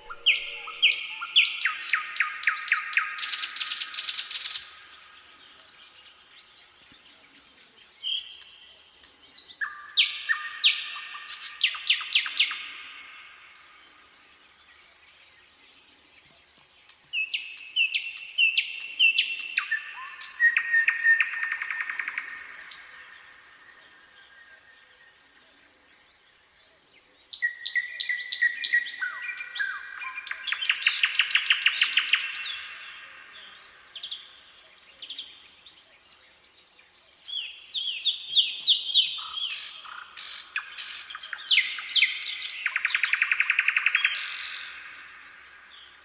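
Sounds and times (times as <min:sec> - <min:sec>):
nightingale singing: 0:00.0 - 0:46.0.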